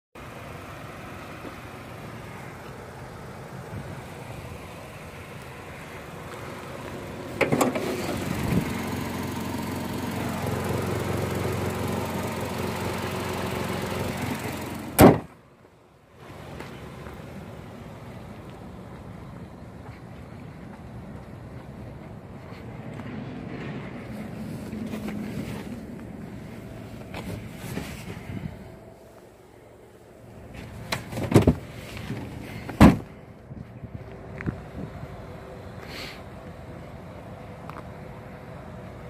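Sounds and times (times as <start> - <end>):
car engine idling: 0.2 - 23.1, 24.0 - 39.0
car bonnet slamming shut: 14.9 - 15.4, 31.0 - 31.6, 32.7 - 33.1.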